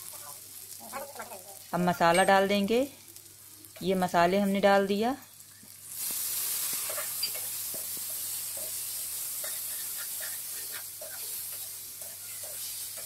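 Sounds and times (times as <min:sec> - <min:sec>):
paste sizzling in hot oil: 0:04.8 - 0:13.0
metal spatula scraping pan: 0:08.2 - 0:13.0.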